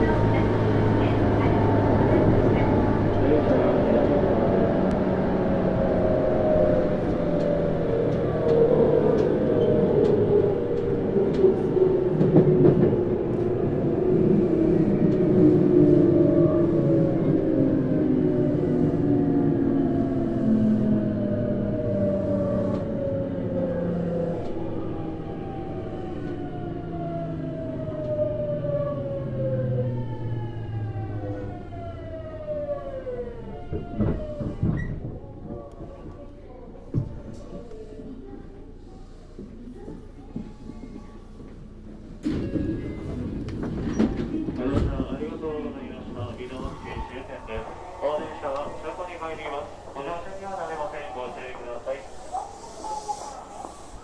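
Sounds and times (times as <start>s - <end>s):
wheel and rail rumble: 0.0s - 54.0s
train inverter tones: 42.2s - 54.0s.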